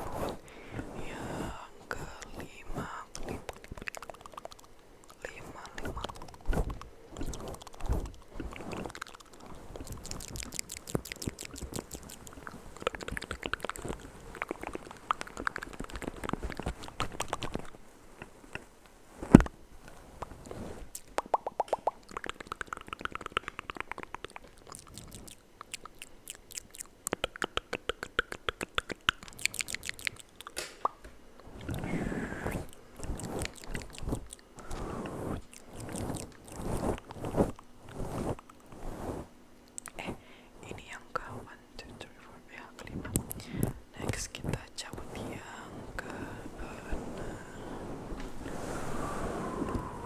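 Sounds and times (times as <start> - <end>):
wet mouth clicks and smacks: 2.0 - 18.6, 20.9 - 31.0, 32.6 - 34.8, 35.4 - 37.6
sharp mouth pop: 21.0 - 24.4.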